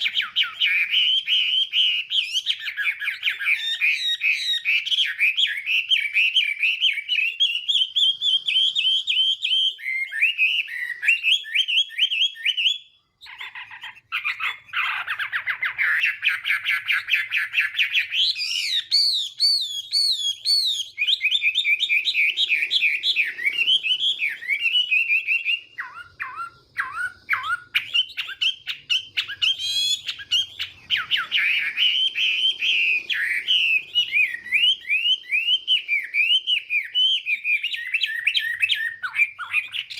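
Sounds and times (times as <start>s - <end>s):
bird singing whistled phrases: 0.0s - 39.9s.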